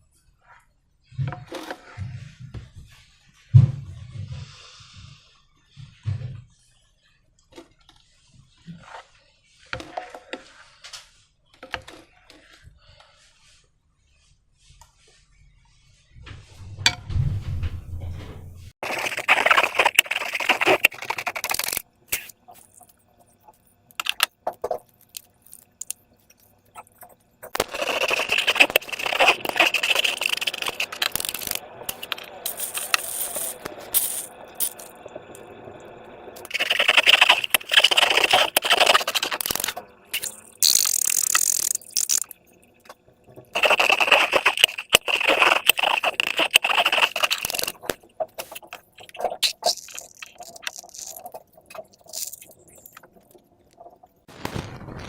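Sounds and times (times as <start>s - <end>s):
slime and balloons squished by hand: 43.6s - 53.1s.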